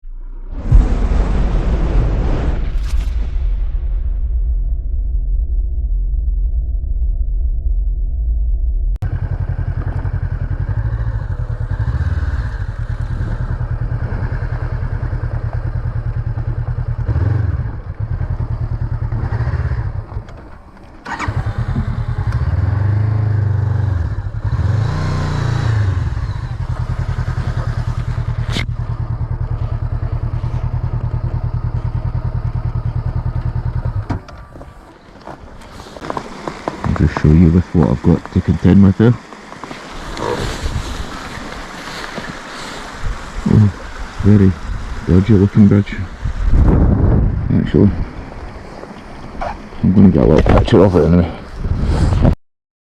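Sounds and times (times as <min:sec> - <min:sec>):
motorcycle engine revving: 0:09.0 - 0:34.7, 0:36.1 - 0:42.4.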